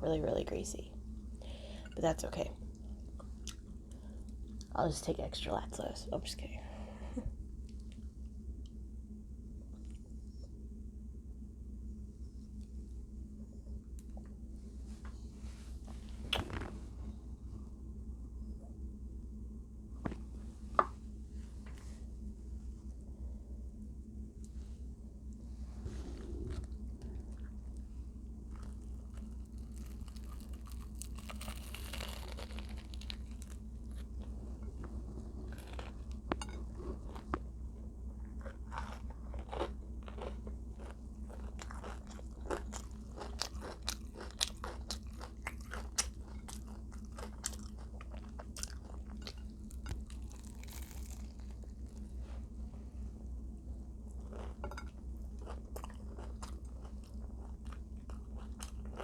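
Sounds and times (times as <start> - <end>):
steady low hum: 0.0 - 59.0
person crunching and chewing: 28.5 - 34.7, 35.4 - 37.5, 38.2 - 52.2, 54.2 - 59.0.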